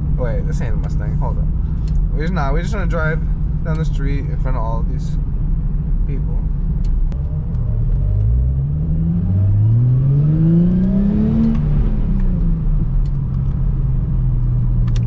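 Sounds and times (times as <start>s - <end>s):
car engine revving: 6.7s - 15.0s.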